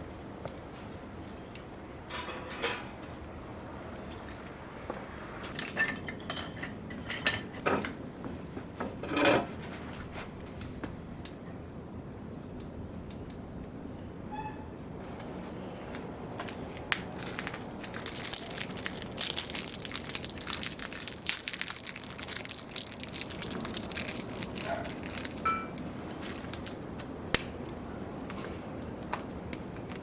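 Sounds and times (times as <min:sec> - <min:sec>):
metal objects clinking: 0:25.4 - 0:25.8.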